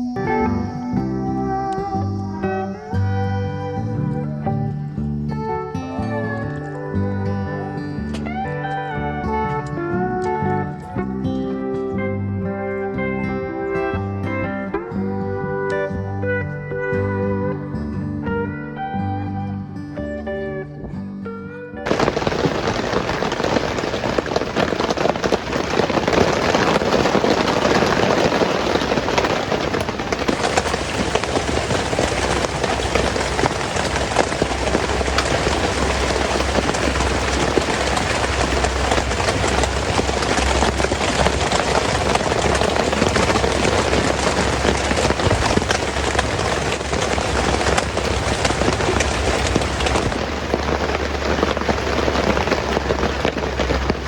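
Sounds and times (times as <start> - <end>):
heavy rain falling: 0.0 - 14.9, 21.8 - 54.0
low rumble: 21.9 - 54.0.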